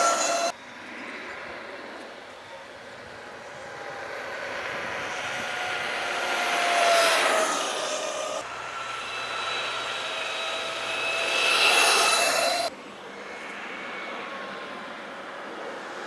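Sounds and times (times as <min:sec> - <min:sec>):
electric motorcycle whine passing: 0:00.0 - 0:16.0.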